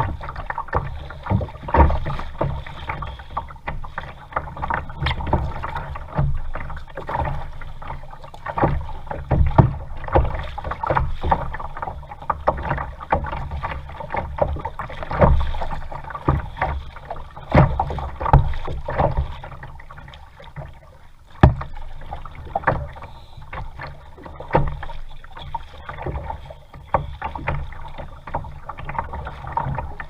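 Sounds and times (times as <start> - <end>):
water splashing around kayak: 0.0 - 30.0.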